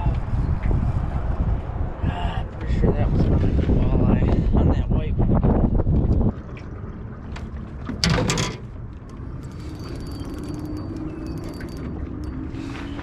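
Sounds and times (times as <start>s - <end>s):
fishing reel whirring and clicking: 9.1s - 12.4s.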